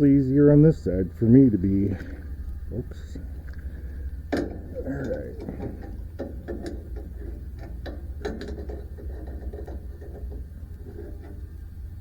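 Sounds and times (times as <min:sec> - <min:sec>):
steady low hum: 0:00.0 - 0:12.0
metal clicks and knocks: 0:04.3 - 0:11.5.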